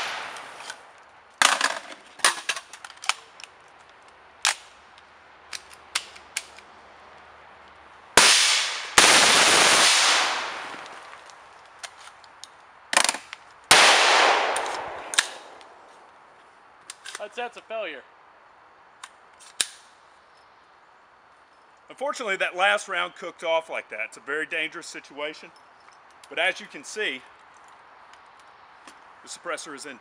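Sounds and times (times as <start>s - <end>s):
loud gun blasts with hiss: 0.0s - 0.6s, 8.2s - 11.1s, 13.7s - 15.6s
suppressed rifle shots: 0.0s - 0.6s, 8.2s - 10.9s, 13.7s - 15.6s.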